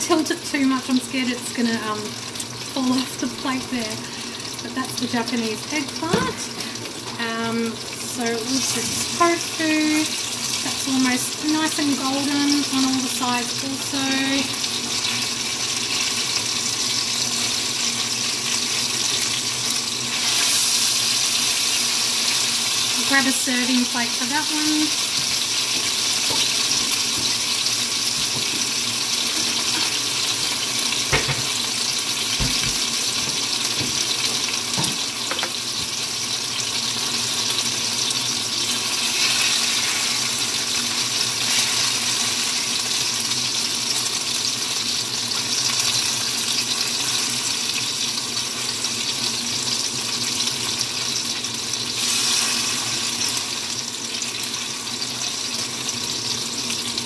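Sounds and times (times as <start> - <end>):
tofu deep-frying in oil: 0.0 - 57.0
kitchenware knocks: 31.1 - 31.5.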